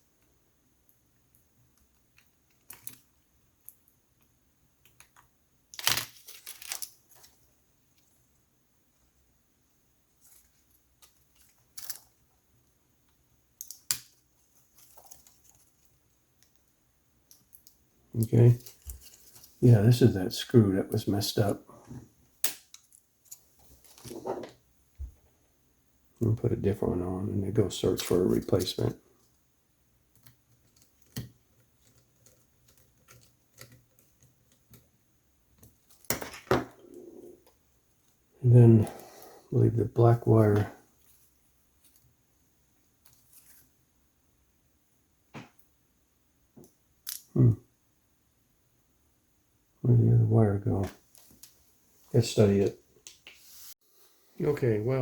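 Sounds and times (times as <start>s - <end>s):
laptop parts clicking and scraping: 30.1s - 35.0s.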